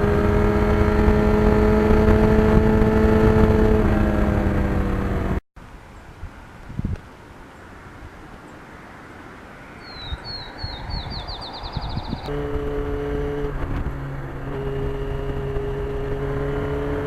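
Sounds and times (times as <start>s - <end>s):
motorcycle engine running: 0.0s - 5.4s, 12.3s - 17.0s
bird chirping and trilling: 9.6s - 12.4s.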